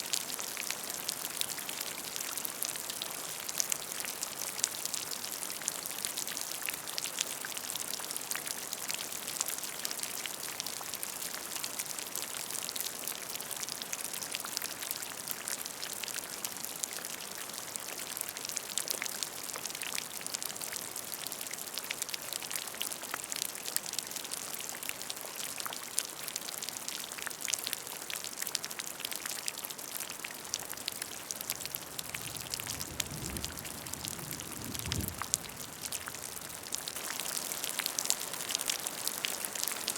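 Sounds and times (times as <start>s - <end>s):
rain splashing on puddle: 0.0s - 39.9s.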